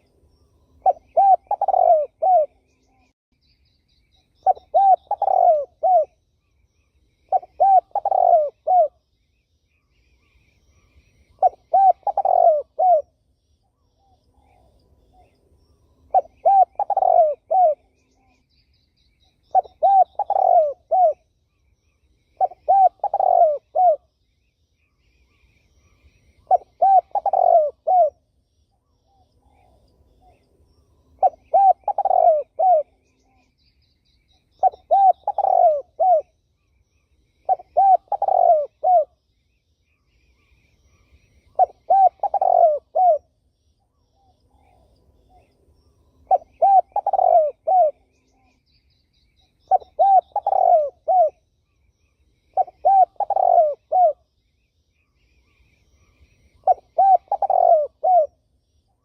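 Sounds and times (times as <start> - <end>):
dove cooing: 0.8 - 2.8, 4.4 - 6.2, 7.3 - 9.0, 11.3 - 13.2, 16.1 - 18.2, 19.5 - 21.2, 22.4 - 24.1, 26.4 - 28.2, 31.2 - 33.4, 34.6 - 36.3, 37.4 - 39.2, 41.5 - 43.3, 46.2 - 48.2, 49.7 - 51.4, 52.5 - 54.2, 56.0 - 58.4.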